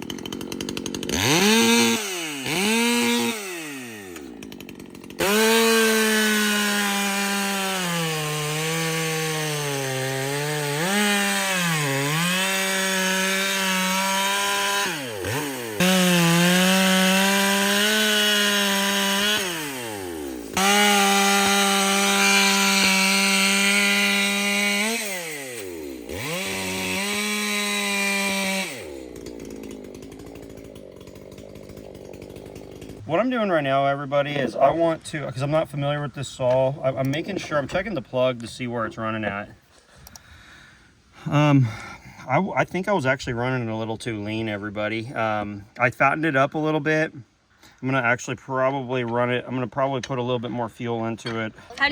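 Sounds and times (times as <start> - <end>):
chainsaw cutting wood: 0.0 - 40.5, 50.0 - 51.9.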